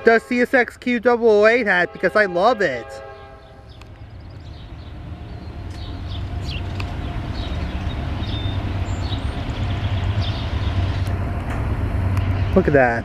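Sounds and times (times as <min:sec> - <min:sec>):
diesel locomotives approaching: 0:00.0 - 0:13.0.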